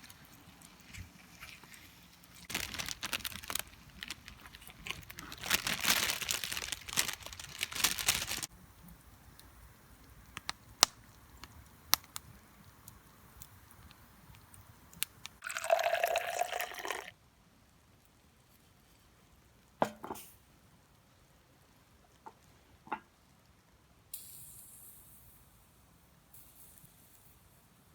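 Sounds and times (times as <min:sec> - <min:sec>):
campfire crackling: 0:00.0 - 0:17.0
liquid pouring: 0:15.4 - 0:17.1.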